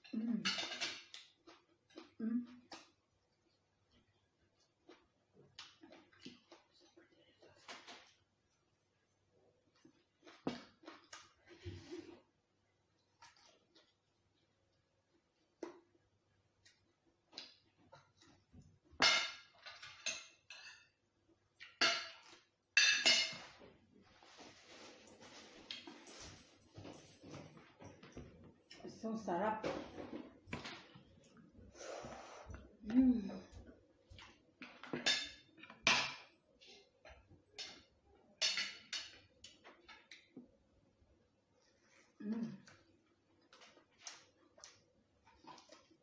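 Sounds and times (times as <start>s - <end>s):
tableware clinking on plate: 0.4s - 1.1s, 21.8s - 23.5s.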